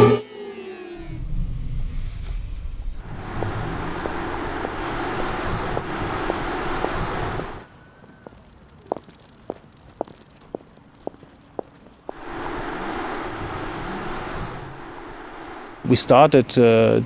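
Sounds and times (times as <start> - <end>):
car driving with tyre and wind noise: 1.0 - 8.6, 12.1 - 15.9.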